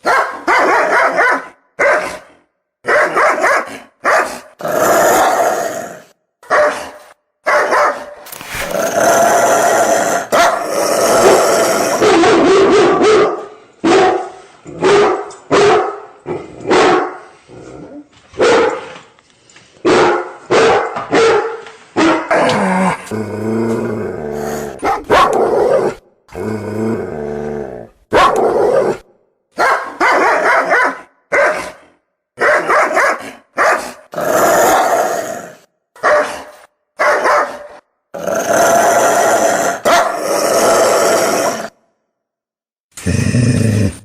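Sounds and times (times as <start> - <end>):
dogs barking: 0.0 - 4.4, 6.4 - 8.2, 12.0 - 17.2, 18.4 - 19.0, 19.8 - 22.4, 24.8 - 26.0, 28.1 - 28.8, 29.6 - 31.8, 32.4 - 34.0, 36.0 - 37.8, 39.9 - 40.2
dog growling: 8.3 - 12.2, 22.4 - 24.8, 43.0 - 44.0.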